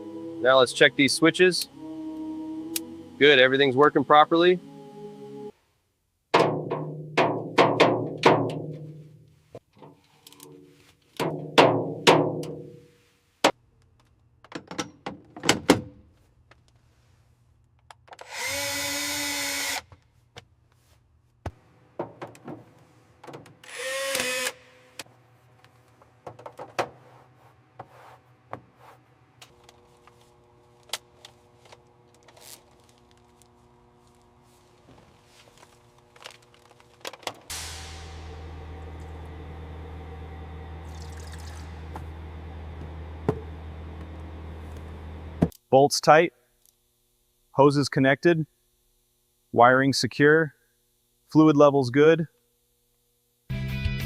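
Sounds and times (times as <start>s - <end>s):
steady buzzing tone: 0.0s - 5.5s, 37.5s - 45.6s
metallic clanks and knocks: 6.4s - 12.8s.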